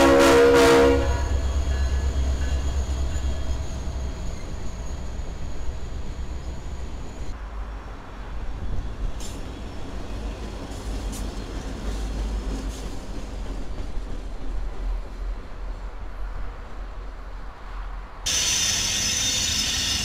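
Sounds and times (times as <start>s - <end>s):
diesel locomotive engine rumble: 0.0s - 20.0s
sharp high squeals: 1.2s - 7.3s, 18.3s - 20.0s.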